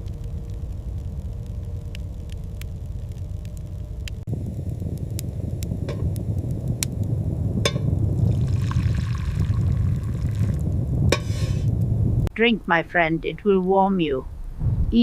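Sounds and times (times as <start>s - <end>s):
steady low rumble: 0.0s - 15.0s
drink pouring into cup: 8.3s - 10.6s.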